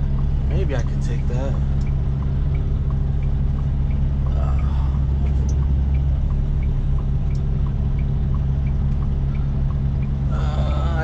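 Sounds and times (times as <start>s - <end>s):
diesel engine humming: 0.0s - 11.0s
turn signal relay clicking: 5.2s - 10.2s.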